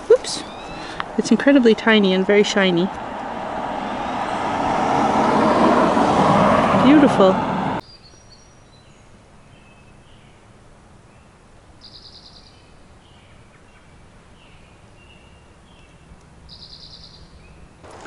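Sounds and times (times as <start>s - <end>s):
small bird chirps: 0.4s - 1.0s, 11.8s - 13.8s, 14.4s - 17.8s.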